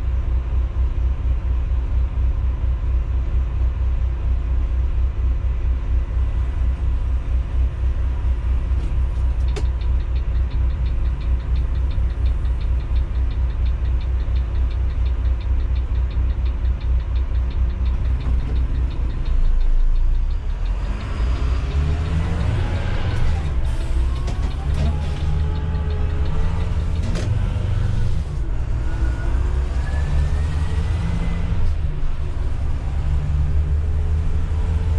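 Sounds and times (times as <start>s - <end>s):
diesel engine rumbling: 0.0s - 34.9s
fast even ticking: 7.3s - 28.4s.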